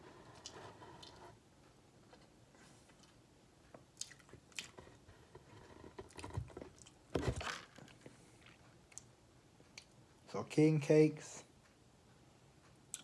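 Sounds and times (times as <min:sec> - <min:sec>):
person chewing soft cake: 0:02.0 - 0:07.0.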